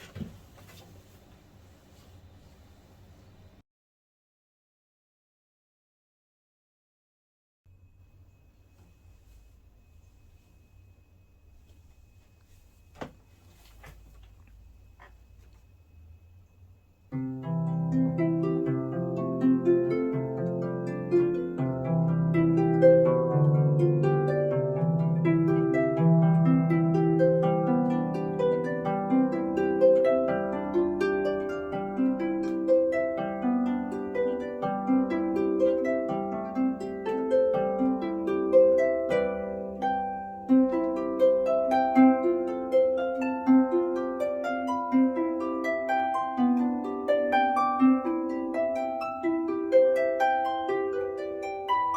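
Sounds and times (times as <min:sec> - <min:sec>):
harp plucked melody: 0:17.1 - 0:51.9.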